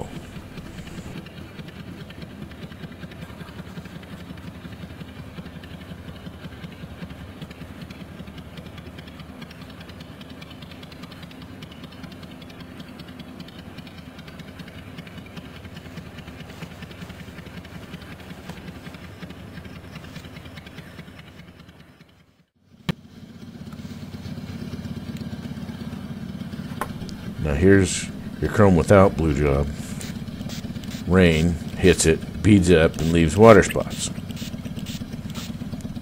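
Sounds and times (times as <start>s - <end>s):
orbital sander running: 0.0s - 9.8s, 13.6s - 21.0s, 23.6s - 36.0s.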